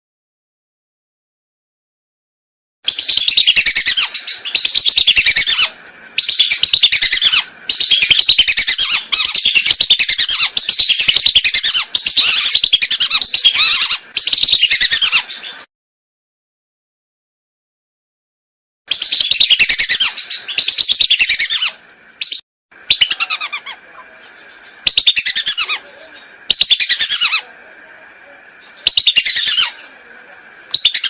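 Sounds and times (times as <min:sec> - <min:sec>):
shrill duck whistles: 0:02.9 - 0:15.4, 0:18.9 - 0:23.8, 0:24.8 - 0:25.8, 0:30.7 - 0:31.0.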